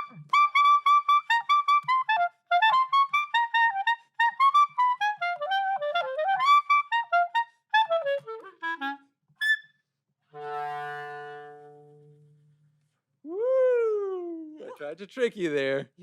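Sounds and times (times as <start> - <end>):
clarinet playing: 0.0 - 12.5.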